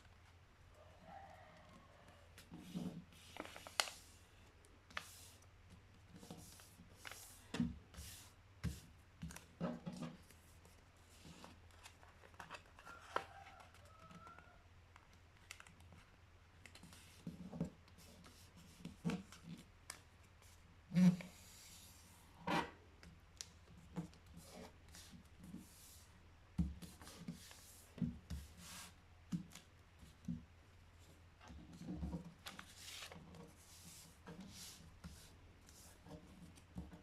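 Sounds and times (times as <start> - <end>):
paper rustling and creasing: 2.4 - 4.2, 9.3 - 13.8, 31.6 - 37.0.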